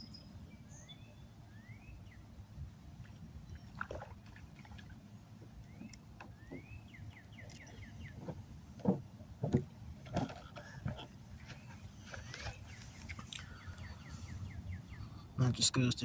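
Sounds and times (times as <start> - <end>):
songbird singing: 0.0 - 16.0.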